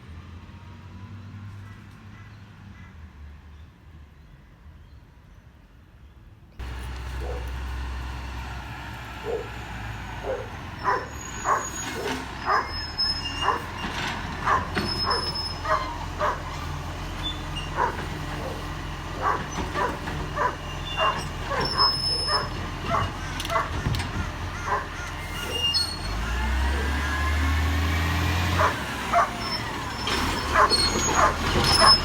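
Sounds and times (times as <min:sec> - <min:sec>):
diesel truck engine running: 0:06.6 - 0:32.0
dog barking: 0:07.1 - 0:07.6, 0:09.2 - 0:09.6, 0:10.2 - 0:12.8, 0:13.4 - 0:13.7, 0:14.4 - 0:16.6, 0:17.7 - 0:25.7, 0:28.6 - 0:29.5, 0:30.5 - 0:32.0.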